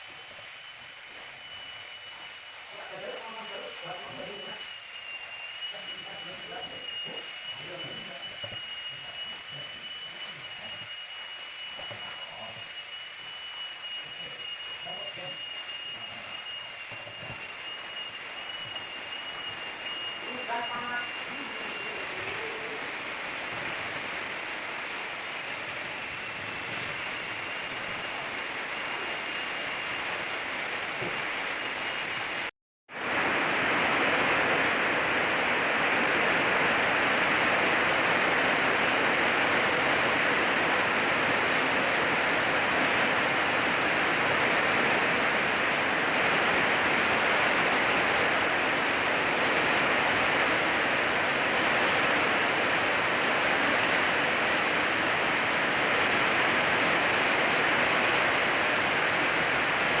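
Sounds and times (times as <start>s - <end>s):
rain falling steadily: 30.0s - 60.0s.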